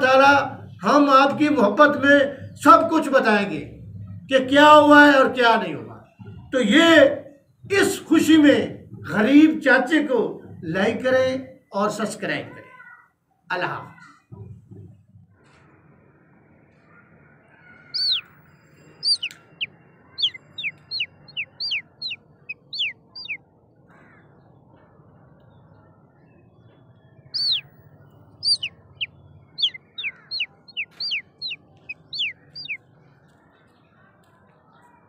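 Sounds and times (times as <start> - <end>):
faint background noise: 0.0 - 35.0
bird whistling falling notes: 18.0 - 18.3, 19.0 - 23.4, 27.4 - 27.6.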